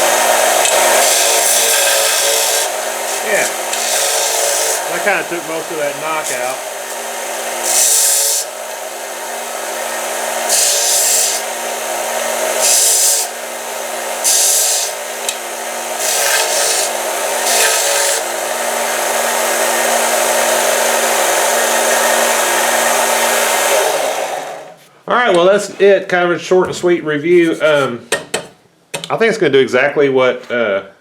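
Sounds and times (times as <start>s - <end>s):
belt sander motor hum: 0.0s - 24.8s
harsh grinding: 0.0s - 24.8s.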